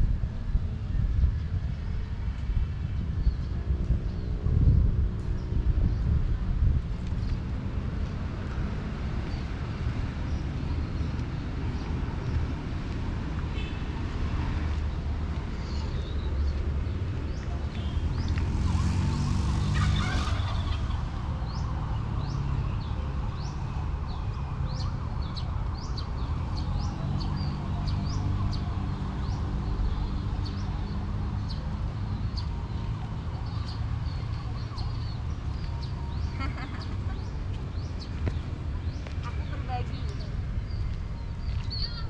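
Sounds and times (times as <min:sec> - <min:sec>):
small birds chirping: 0:26.0 - 0:42.0.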